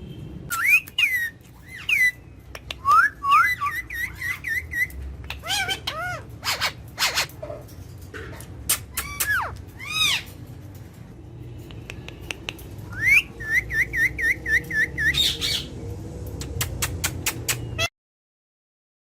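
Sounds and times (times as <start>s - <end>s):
parrot whistling and squawking: 0.5s - 7.6s, 8.7s - 10.4s, 12.9s - 15.8s, 17.0s - 17.9s.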